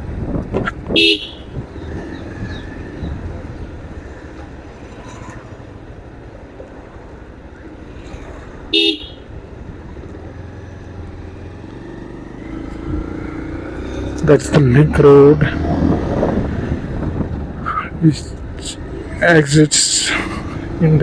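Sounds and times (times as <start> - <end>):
road and traffic noise: 0.0 - 21.0
vehicle horn toot: 0.9 - 1.6, 8.7 - 9.2.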